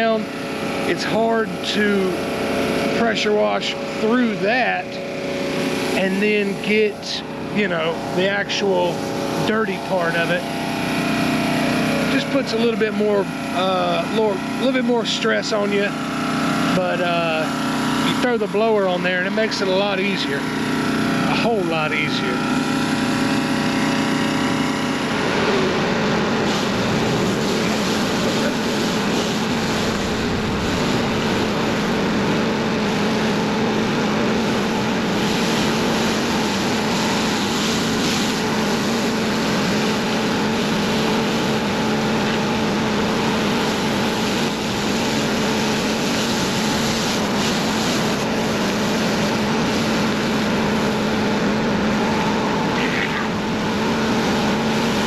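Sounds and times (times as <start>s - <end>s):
small gas engines droning: 0.0s - 55.0s
rushing hiss of spray and air: 21.0s - 55.0s.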